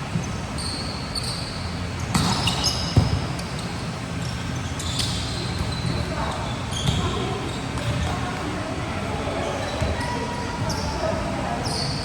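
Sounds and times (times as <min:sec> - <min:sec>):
sneakers squeaking on court: 0:00.0 - 0:08.4, 0:09.3 - 0:12.0
murmur of the hall: 0:00.0 - 0:12.0.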